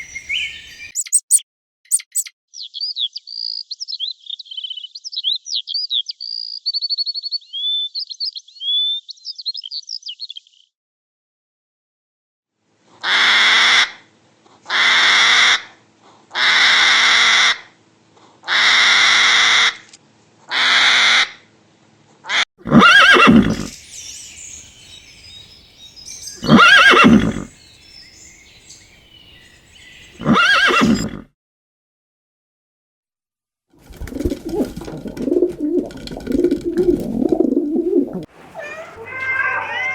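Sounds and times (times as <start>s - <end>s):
wavering pitched animal calls: 0.0s - 2.3s, 26.3s - 27.6s
breathy animal calls: 26.4s - 27.6s.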